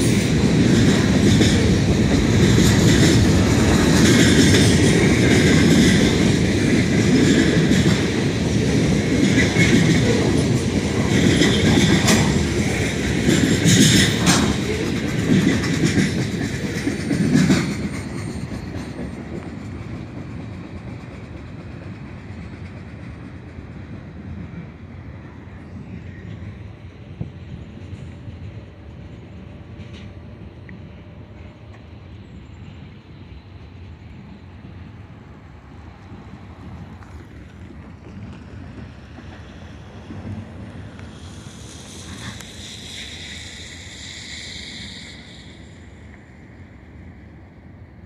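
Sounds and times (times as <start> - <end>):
wheels clacking over rail joints: 0.0 - 24.7
freight train wheels rumbling: 0.0 - 48.0.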